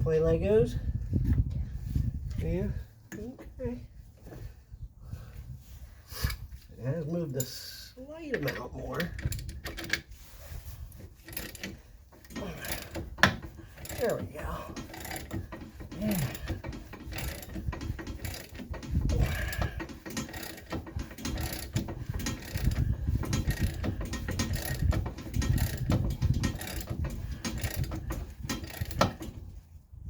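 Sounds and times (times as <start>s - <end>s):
metal tool noise: 11.1s - 29.4s
ratchet wrench clicking: 11.2s - 14.1s, 14.7s - 29.4s.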